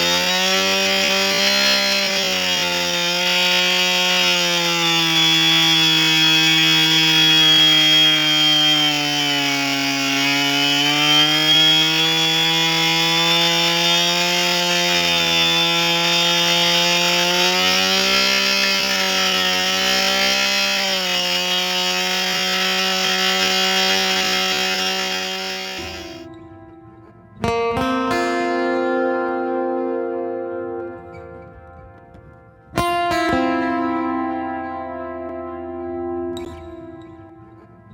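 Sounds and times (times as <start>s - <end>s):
chainsaw carving wood: 0.0s - 26.3s.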